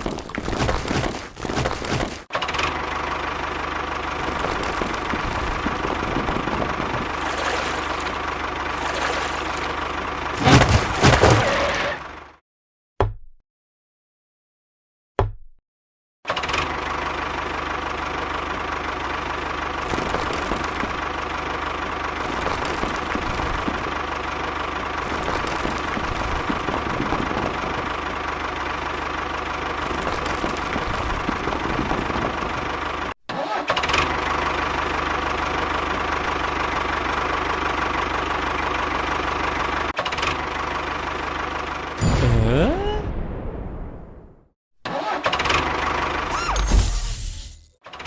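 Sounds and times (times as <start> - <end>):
engine running steadily: 0.0 - 12.3, 16.3 - 33.1.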